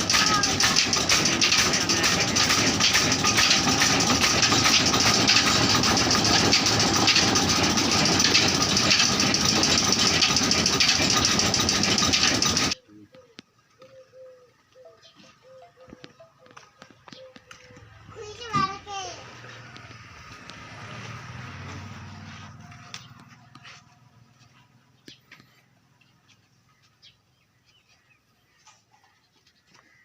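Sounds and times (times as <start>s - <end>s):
stationary engine running: 0.0s - 12.8s.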